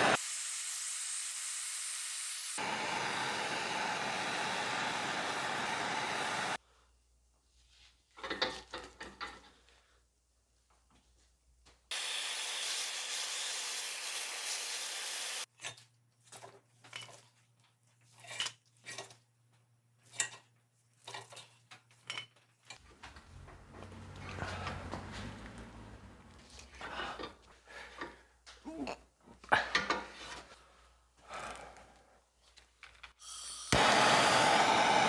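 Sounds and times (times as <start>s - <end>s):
hand tool scraping an axe: 18.0s - 19.2s.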